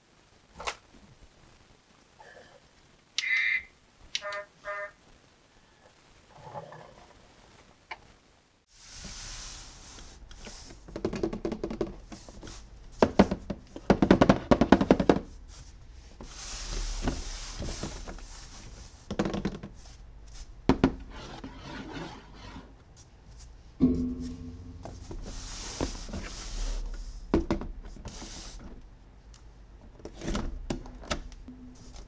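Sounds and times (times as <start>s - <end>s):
rapid clicks and knocks: 10.8s - 12.0s.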